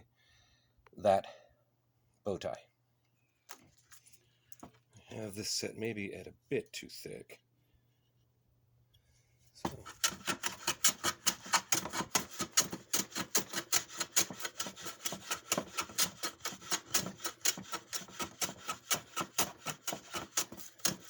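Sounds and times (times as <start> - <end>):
hand plane strokes on wood: 9.7 - 21.0.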